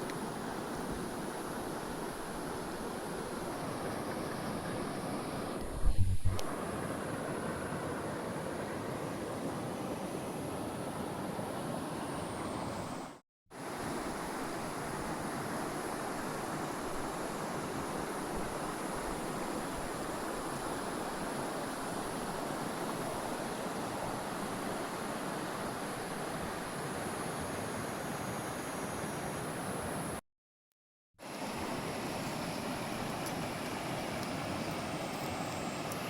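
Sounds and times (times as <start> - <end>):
creek water rushing: 0.0 - 5.6, 13.6 - 30.0, 31.2 - 36.0.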